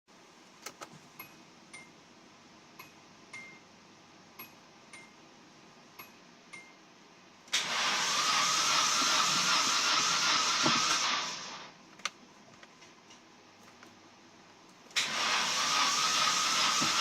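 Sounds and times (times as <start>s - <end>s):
starter cranking engine: 7.5s - 11.6s, 15.0s - 17.0s.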